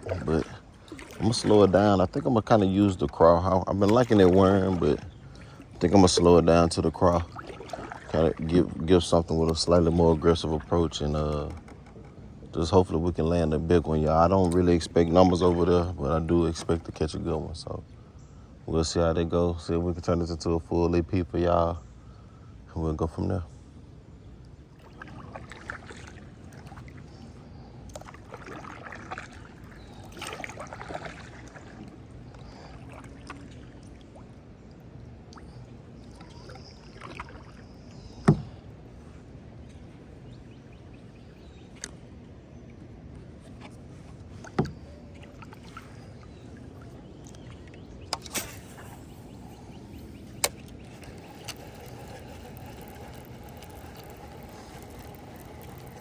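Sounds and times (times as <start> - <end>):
water sloshing: 0.0 - 17.4, 24.4 - 56.0
sharp knocks on kayak: 38.2 - 38.6.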